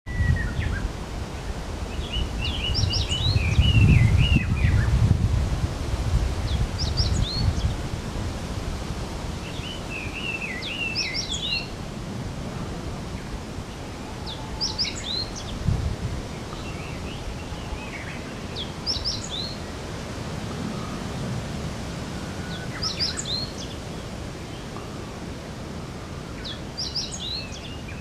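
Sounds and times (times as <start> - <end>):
songbird warbling: 9.4 - 11.8, 13.2 - 15.6, 16.2 - 19.8, 22.1 - 25.0.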